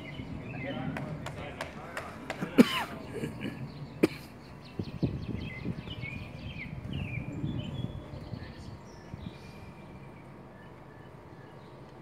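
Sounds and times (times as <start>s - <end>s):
low outdoor rumble: 0.0s - 12.0s
small birds chirping: 0.0s - 12.0s.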